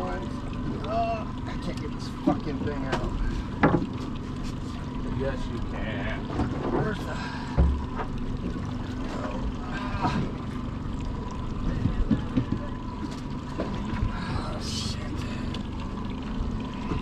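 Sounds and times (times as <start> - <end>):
boat motor running: 0.0 - 17.0
low thump: 7.5 - 8.1.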